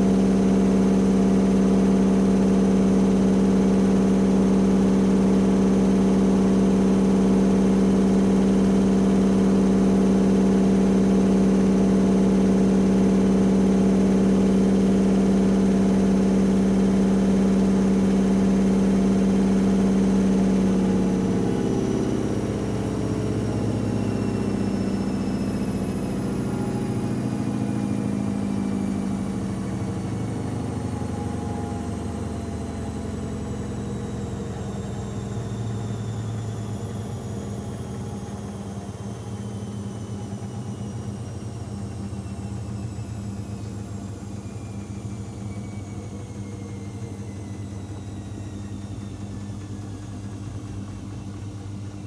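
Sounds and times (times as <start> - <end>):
washing machine spinning: 0.0 - 39.0.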